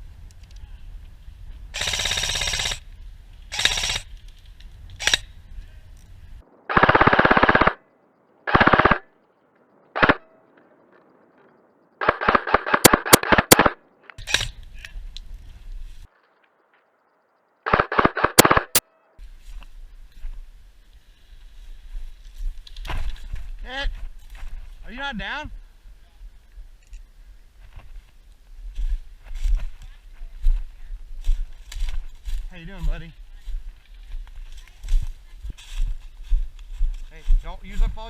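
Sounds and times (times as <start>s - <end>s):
airsoft guns firing bursts: 1.8s - 2.8s, 3.5s - 4.0s, 6.7s - 7.8s, 8.5s - 9.0s, 12.0s - 14.5s, 17.7s - 18.8s.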